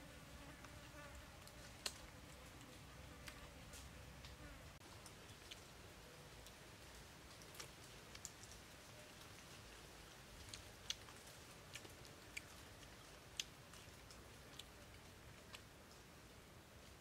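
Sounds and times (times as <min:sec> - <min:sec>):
person chewing clicks: 0:10.4 - 0:15.7.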